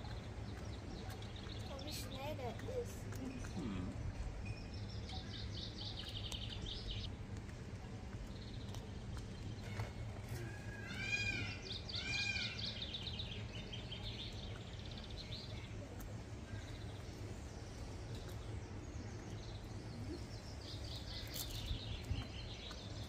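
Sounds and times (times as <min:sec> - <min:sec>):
low outdoor rumble: 0:00.0 - 0:23.0
small birds twittering: 0:00.0 - 0:23.0
bird calling: 0:09.6 - 0:13.2.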